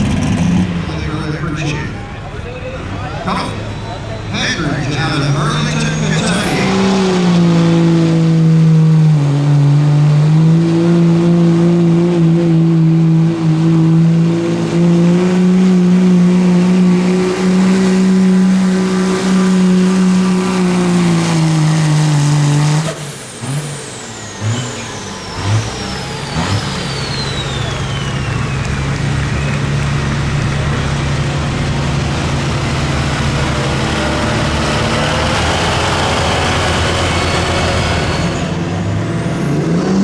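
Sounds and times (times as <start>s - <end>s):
high whine: 0.0s - 8.9s
engine running at high revs: 0.0s - 40.0s.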